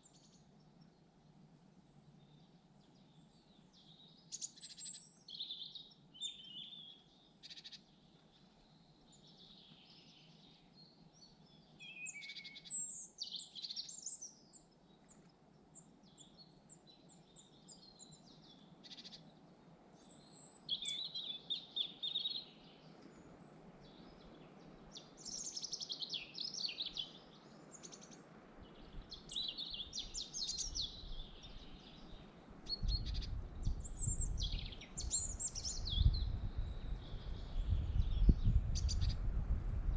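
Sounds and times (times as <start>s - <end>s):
forest birds singing: 0.0s - 39.9s
wind buffeting microphone: 30.0s - 39.9s.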